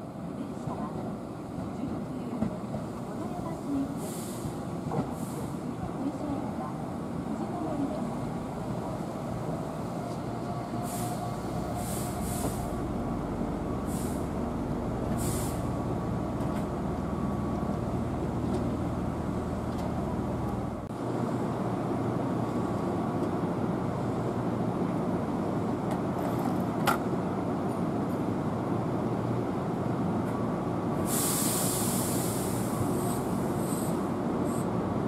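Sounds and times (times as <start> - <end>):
train rumble: 0.0 - 35.0
stopped train humming: 2.4 - 24.7
train braking whine: 10.1 - 13.0
brake air hisses: 10.8 - 12.8, 15.1 - 15.7, 31.0 - 34.6.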